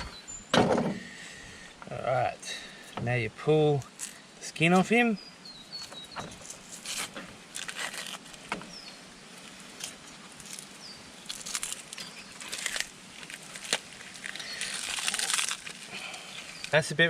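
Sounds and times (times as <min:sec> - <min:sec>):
bird chirps: 0:00.0 - 0:00.6, 0:05.0 - 0:06.5
fish skin scraping and tearing: 0:06.6 - 0:08.5, 0:09.7 - 0:16.8.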